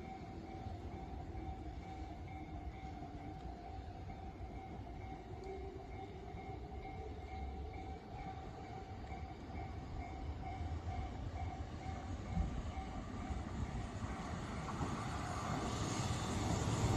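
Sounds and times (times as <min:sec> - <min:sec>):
electric train running past: 0:00.0 - 0:16.9.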